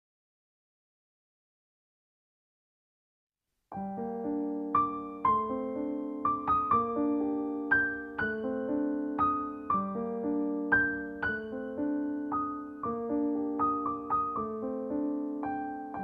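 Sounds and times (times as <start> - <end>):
gentle piano melody: 3.7 - 16.0.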